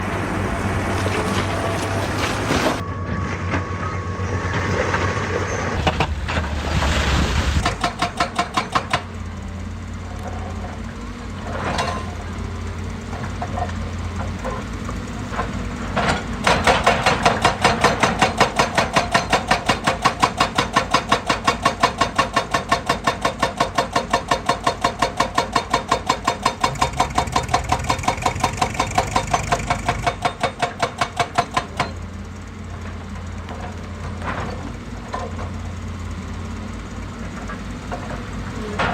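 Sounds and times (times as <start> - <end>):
excavator engine running: 0.0 - 38.9
hydraulic rock breaker hammering: 7.6 - 9.3, 15.9 - 32.1.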